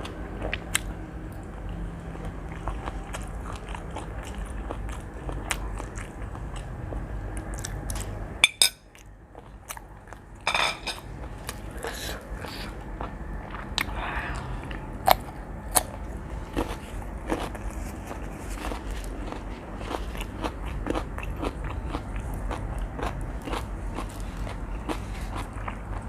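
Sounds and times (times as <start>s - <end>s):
person chewing and biting food: 2.3s - 8.2s, 11.2s - 26.0s.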